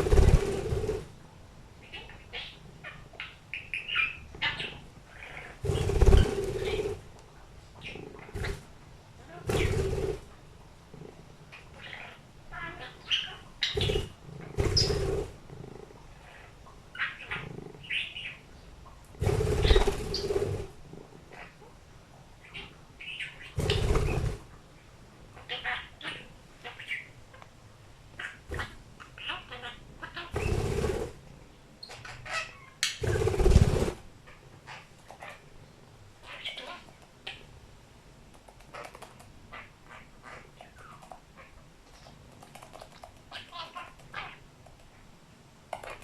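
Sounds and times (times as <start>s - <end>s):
budgie chirping: 11.7s - 15.3s.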